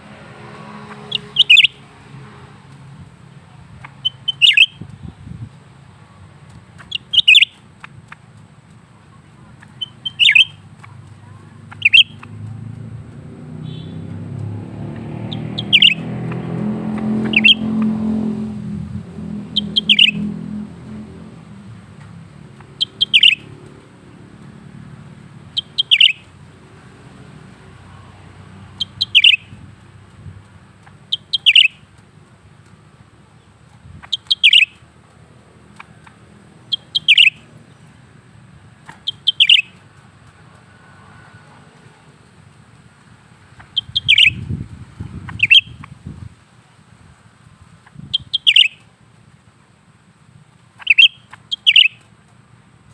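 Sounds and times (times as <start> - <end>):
vehicle passing rumble: 0.0 - 52.9
bird calling sharp falling notes: 13.6 - 23.7.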